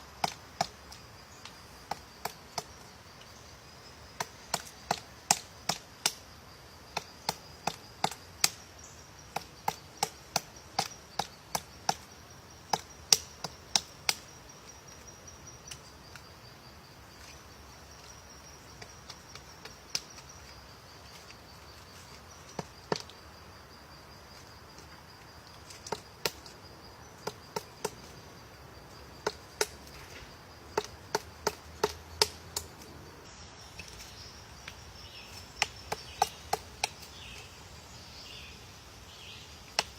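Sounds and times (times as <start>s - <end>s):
high insect trill: 0.0s - 39.9s
woodpecker pecking at wood: 4.1s - 6.2s, 17.2s - 23.3s, 29.0s - 30.0s, 30.7s - 32.9s.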